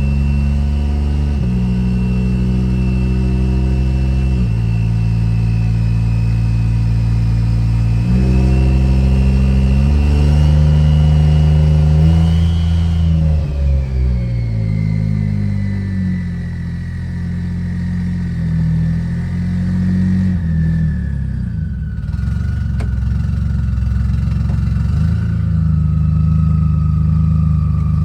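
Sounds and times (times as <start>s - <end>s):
engine running under load: 0.0s - 17.0s.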